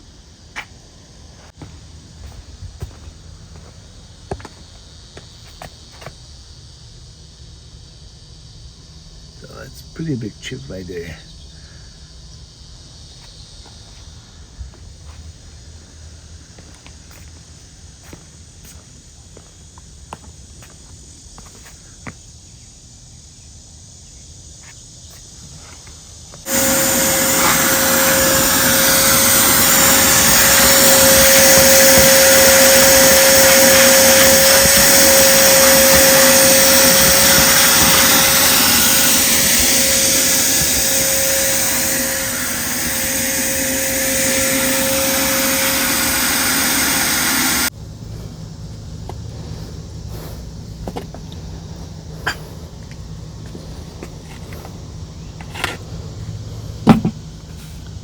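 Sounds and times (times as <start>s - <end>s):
pressure washer machine whine: 26.4s - 47.7s
pressure washer spraying: 26.5s - 47.7s.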